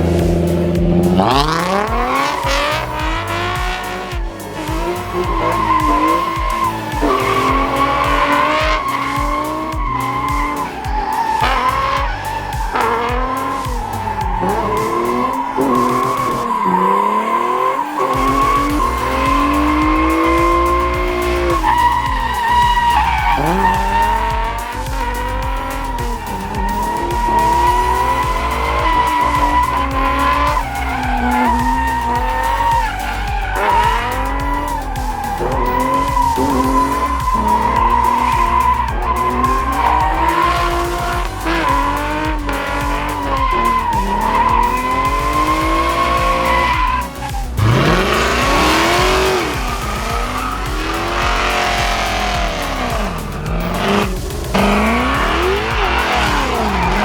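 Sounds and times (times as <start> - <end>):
car engine revving: 0.0 - 57.0
tire squeal: 0.0 - 57.0.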